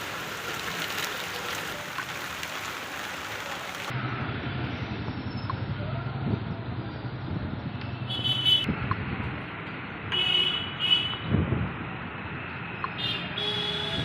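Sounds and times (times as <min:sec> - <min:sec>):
traffic hiss: 0:00.0 - 0:03.9
vehicle horns honking: 0:13.0 - 0:14.0.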